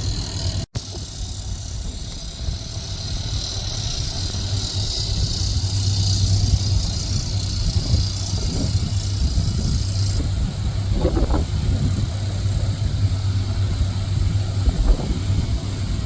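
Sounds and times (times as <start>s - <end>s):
diesel machine droning: 0.0s - 16.0s.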